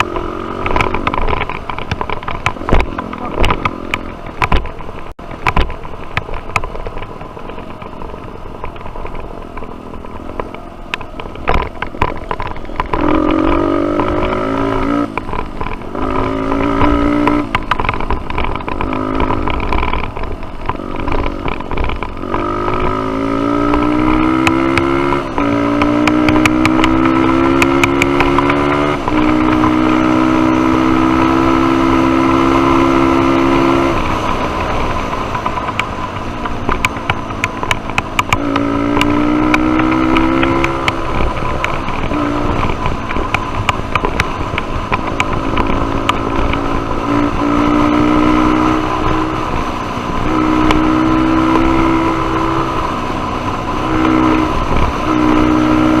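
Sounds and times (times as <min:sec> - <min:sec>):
knocks and clatter: 0:00.0 - 0:56.0
dirt bike engine revving: 0:12.8 - 0:17.5, 0:20.7 - 0:35.8, 0:36.9 - 0:56.0.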